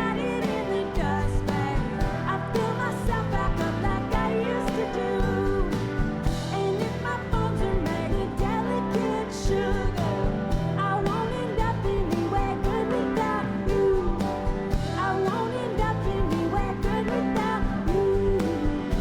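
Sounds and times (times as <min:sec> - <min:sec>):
live rock band playing: 0:00.0 - 0:19.0
person singing lead vocal: 0:00.0 - 0:19.0.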